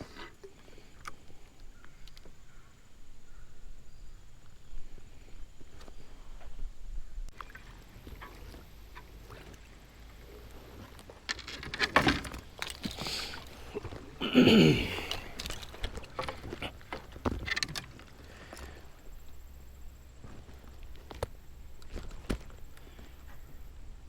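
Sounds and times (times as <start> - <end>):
paddle splashes: 7.3 - 24.0.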